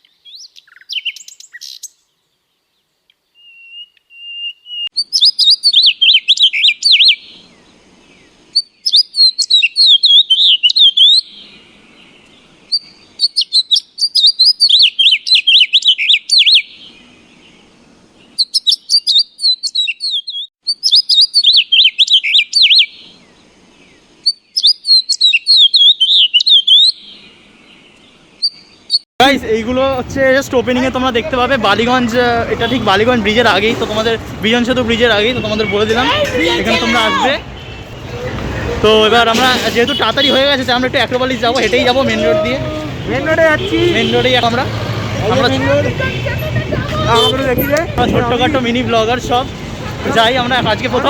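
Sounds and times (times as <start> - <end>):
bird warbling chirps: 3.3 - 7.7, 8.5 - 17.3, 18.2 - 23.3, 23.9 - 29.0.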